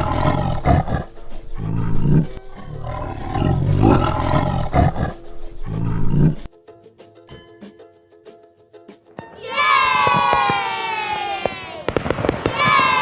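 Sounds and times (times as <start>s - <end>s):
tiger roaring: 0.0s - 6.5s.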